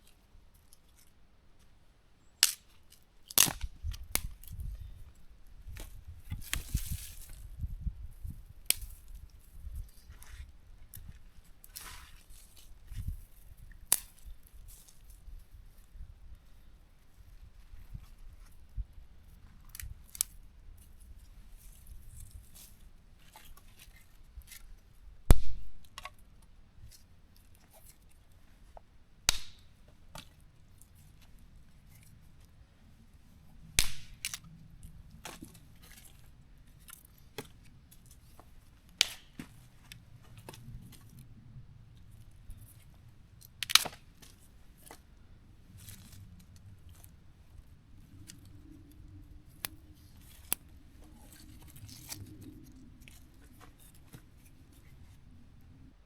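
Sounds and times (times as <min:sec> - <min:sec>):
firewood cracking and snapping: 0:02.4 - 0:04.6, 0:29.3 - 0:29.7, 0:33.8 - 0:34.5, 0:38.8 - 0:41.0, 0:43.4 - 0:45.0, 0:49.5 - 0:54.2.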